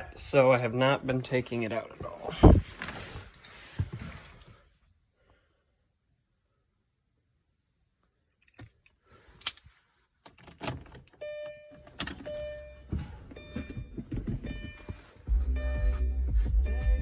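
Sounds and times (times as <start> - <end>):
handling noise inside car: 1.5 - 4.6, 8.5 - 15.3
car keys jangling: 10.3 - 15.3.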